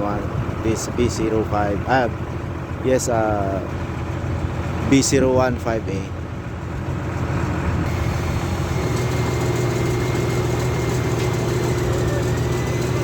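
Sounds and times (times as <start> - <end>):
crane engine running: 0.0 - 13.0.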